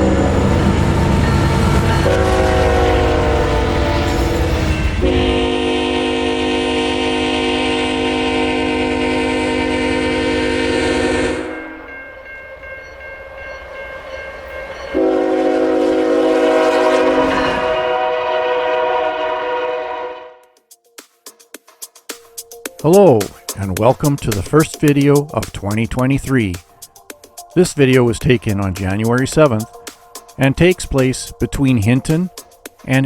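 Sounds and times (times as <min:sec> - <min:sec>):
locomotive air horn blasts: 0:00.0 - 0:11.9, 0:14.9 - 0:20.5
passing train rumble: 0:00.0 - 0:20.4, 0:22.6 - 0:33.0.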